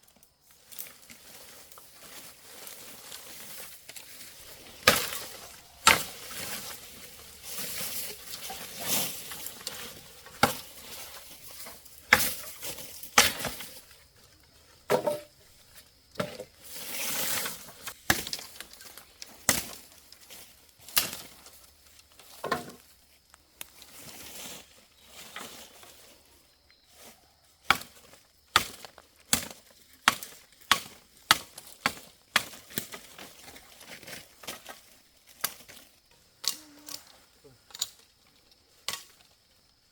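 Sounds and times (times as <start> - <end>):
rustling: 0.1 - 31.8
firewood chopping blows: 4.4 - 6.8, 9.4 - 13.8, 27.6 - 33.0.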